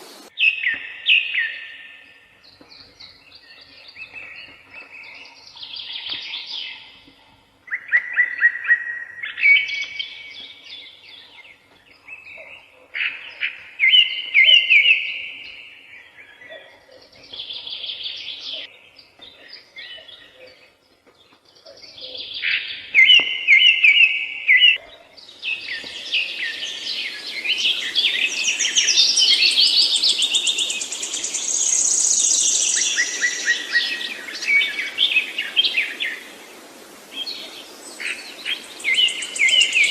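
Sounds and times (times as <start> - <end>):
background hiss: 0.0 - 0.5, 17.2 - 39.9
songbirds singing: 0.0 - 39.9.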